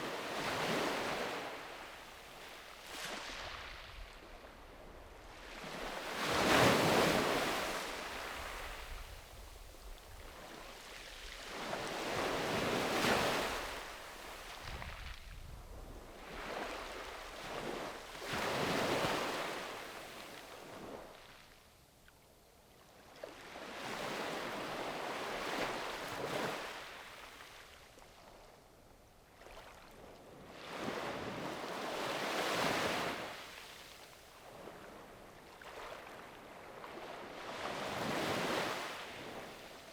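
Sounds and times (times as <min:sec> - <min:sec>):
sea waves breaking on shore: 0:00.0 - 0:04.5, 0:05.2 - 0:09.0.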